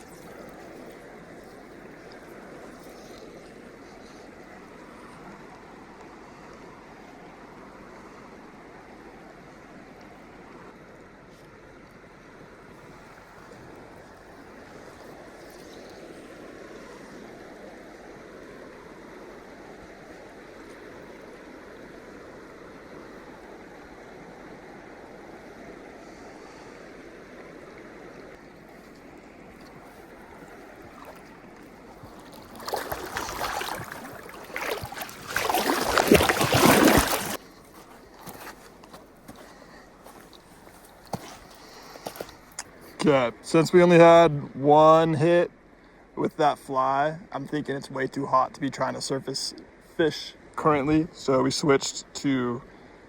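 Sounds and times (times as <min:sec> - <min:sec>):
water splashing and sloshing: 0:00.0 - 0:08.8, 0:12.6 - 0:22.0, 0:27.2 - 0:43.1
river current running: 0:00.0 - 0:47.5
river water rushing over rocks: 0:29.0 - 0:42.6.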